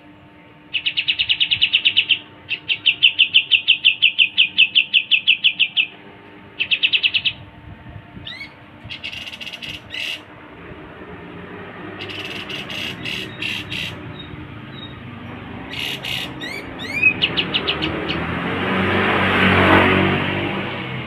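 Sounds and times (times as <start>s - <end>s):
bird calling: 0.7s - 7.5s, 8.2s - 10.4s, 11.8s - 18.6s
passing vehicle: 7.2s - 21.0s
rising whistles: 8.2s - 19.9s.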